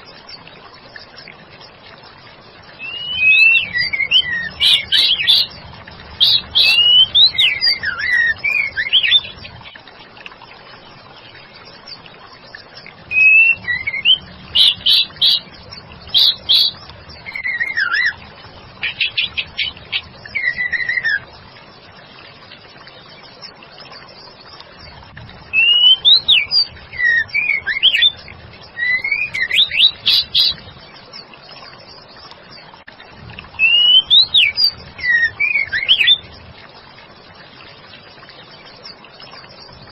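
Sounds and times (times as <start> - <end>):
bird singing whistled phrases: 2.8 - 5.5, 6.2 - 9.4, 13.1 - 15.5, 16.1 - 18.2, 20.3 - 21.3, 25.5 - 28.2, 28.8 - 30.6, 33.6 - 36.2.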